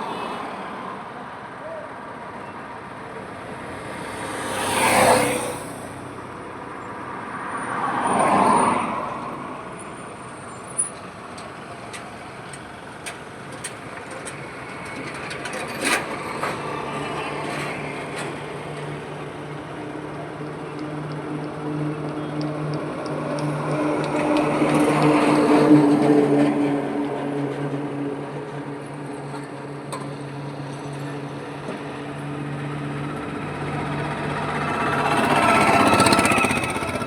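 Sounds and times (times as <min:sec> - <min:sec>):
vehicles passing close by: 0:00.0 - 0:37.0
low engine hum: 0:30.1 - 0:37.0.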